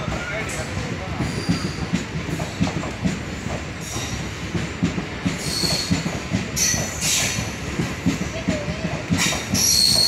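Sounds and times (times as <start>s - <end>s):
train wheel squeals: 0.0s - 2.6s, 3.8s - 4.4s, 5.3s - 7.6s, 9.2s - 10.0s
train wheels clattering over rail joints: 0.0s - 10.0s.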